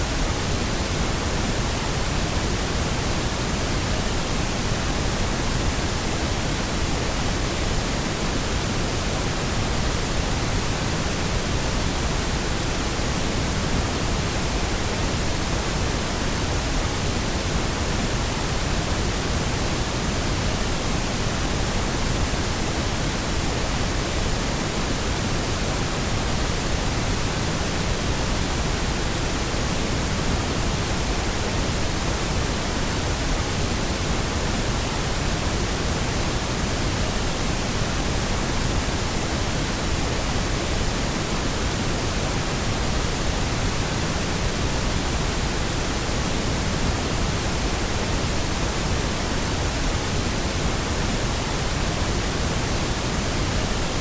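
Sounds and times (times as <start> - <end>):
pink noise hiss: 0.0 - 54.0.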